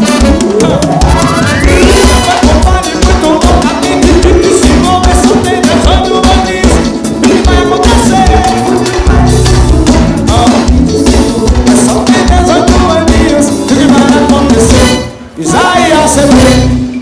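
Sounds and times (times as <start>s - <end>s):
drum kit beat: 0.0s - 17.0s
keyboard and brass lines: 0.0s - 17.0s
live dance band music: 0.0s - 17.0s.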